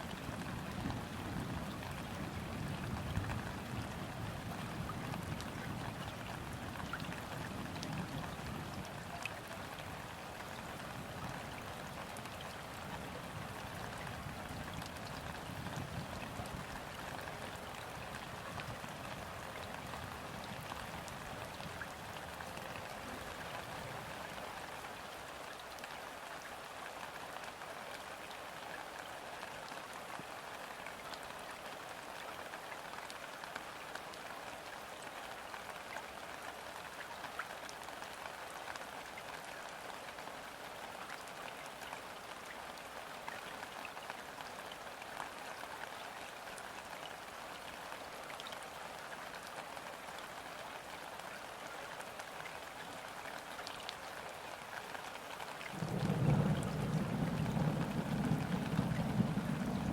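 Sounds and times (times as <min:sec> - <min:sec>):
rain falling on water: 0:00.0 - 0:59.9
distant thunder rumble: 0:55.8 - 0:59.9.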